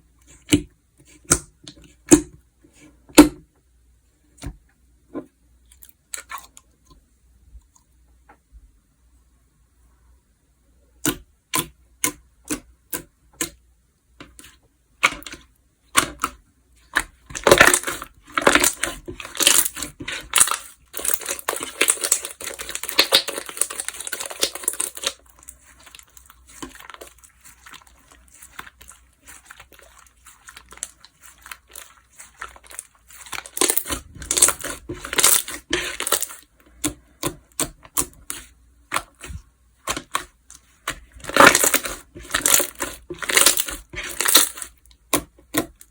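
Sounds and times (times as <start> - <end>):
slime clicking and crackling: 17.0 - 45.9.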